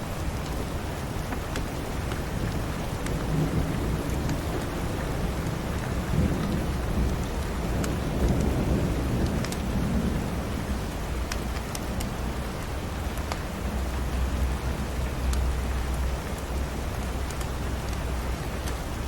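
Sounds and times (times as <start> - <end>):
thunder rumbling: 0.0 - 13.0
steady rain: 0.0 - 19.0.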